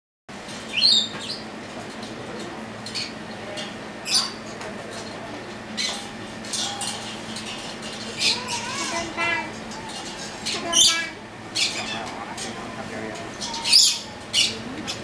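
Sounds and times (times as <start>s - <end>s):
steady low hum: 0.3s - 15.0s
bird chirps and calls: 0.7s - 1.5s, 4.0s - 4.4s, 9.8s - 12.1s, 13.3s - 15.0s.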